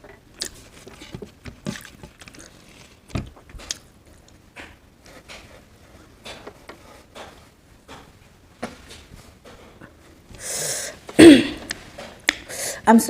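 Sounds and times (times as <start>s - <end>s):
wet chewing noises: 0.4s - 1.0s, 1.6s - 4.3s.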